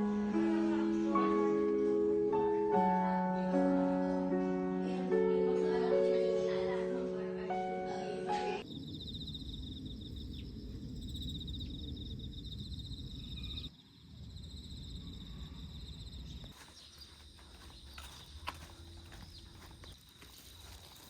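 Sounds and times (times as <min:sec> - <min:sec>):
insects trilling: 0:08.6 - 0:21.0.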